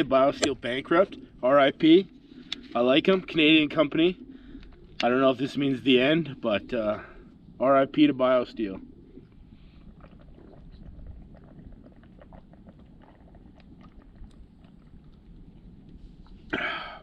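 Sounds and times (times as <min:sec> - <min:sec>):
faint chewing clicks: 0:04.2 - 0:05.2, 0:09.1 - 0:16.6.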